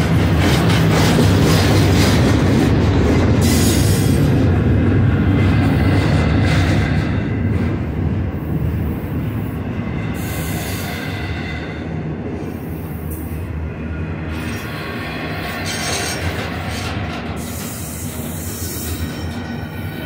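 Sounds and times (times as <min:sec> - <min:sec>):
steel wheels rumbling on rail: 0:00.0 - 0:20.0.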